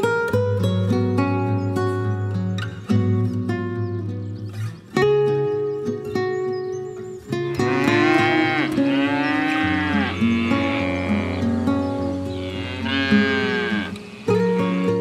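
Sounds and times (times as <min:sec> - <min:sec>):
acoustic guitar music: 0:00.0 - 0:15.0
buffalo calf bawling: 0:07.6 - 0:15.0.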